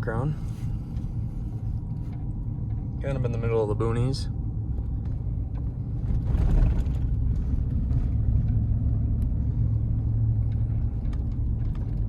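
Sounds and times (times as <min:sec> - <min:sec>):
truck engine rumble: 0:00.0 - 0:12.0
tyres crunching over rough road: 0:04.5 - 0:12.0.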